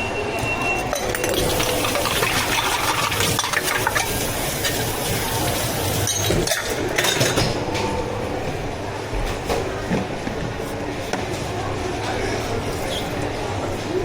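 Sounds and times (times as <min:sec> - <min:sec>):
utensils clinking and scraping: 0:00.8 - 0:07.9.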